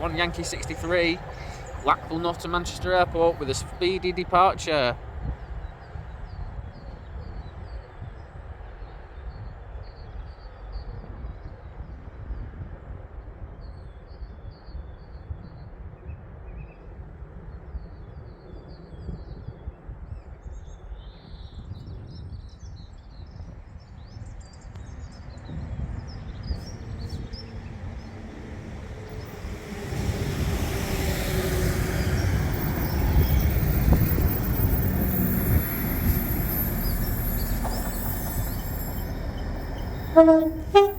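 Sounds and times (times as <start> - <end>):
wheels squealing on rails: 0.0 - 5.0, 26.6 - 40.9
train arriving: 0.0 - 6.2, 26.6 - 40.9
small birds chirping: 24.2 - 40.9.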